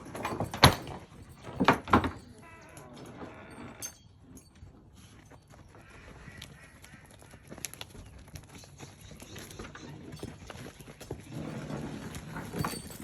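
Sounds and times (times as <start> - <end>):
donkey hooves clopping: 0.0 - 13.0.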